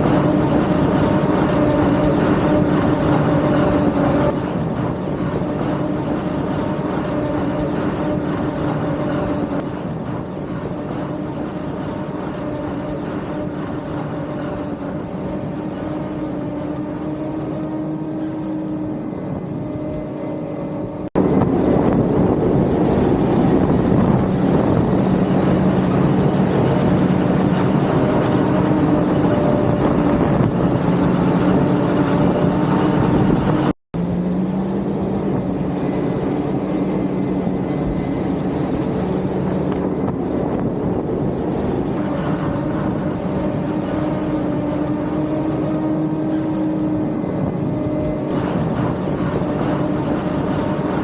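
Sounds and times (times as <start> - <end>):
diesel engine droning under load: 0.0 - 51.0.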